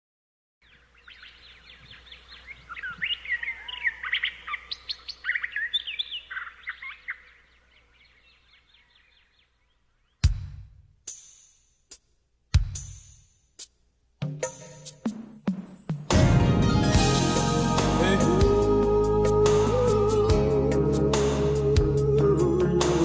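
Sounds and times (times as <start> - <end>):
small birds chirping: 0.6 - 10.4
loud drum hit: 16.1 - 18.8.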